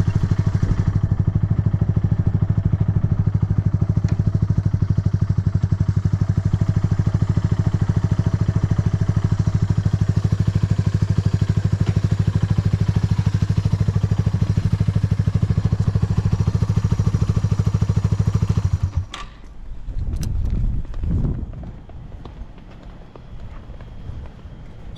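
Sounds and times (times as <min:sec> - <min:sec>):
motorcycle engine running: 0:00.0 - 0:19.1.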